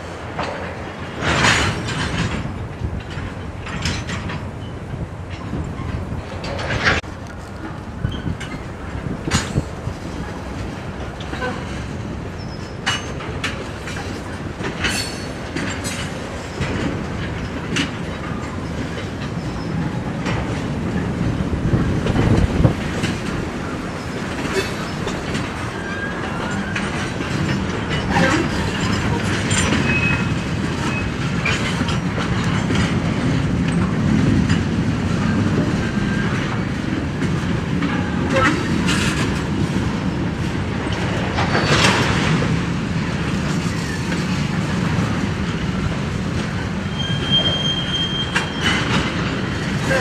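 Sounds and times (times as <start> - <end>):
freight train rolling past: 0.0 - 50.0
wheels clanking over rail joints: 0.0 - 50.0
high wheel squeals: 24.0 - 27.0, 29.6 - 30.3, 46.8 - 50.0.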